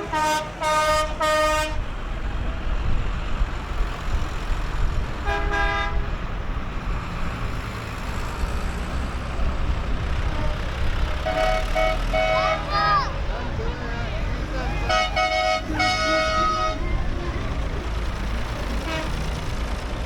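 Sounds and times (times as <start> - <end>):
horn blast: 0.0 - 1.9, 10.3 - 12.8, 14.7 - 17.0, 18.8 - 19.2
vehicle engines rumbling: 0.0 - 20.0.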